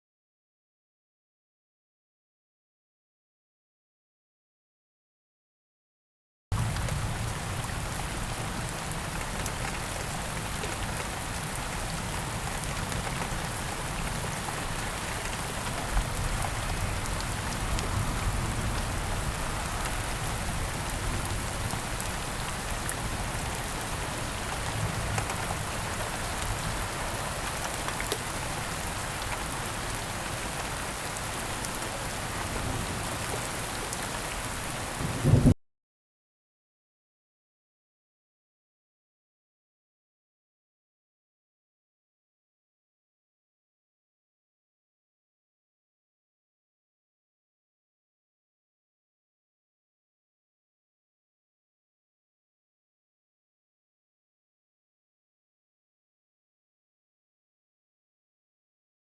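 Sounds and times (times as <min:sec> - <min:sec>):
steady rain falling: 0:06.5 - 0:35.6.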